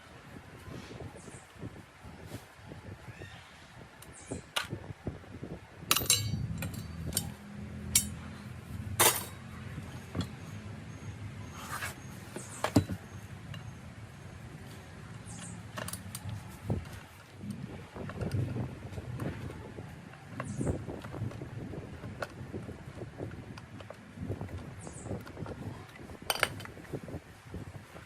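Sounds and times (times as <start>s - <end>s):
low steady hum: 5.8s - 28.0s
sharp metallic clinks and knocks: 5.9s - 8.3s, 8.9s - 10.7s.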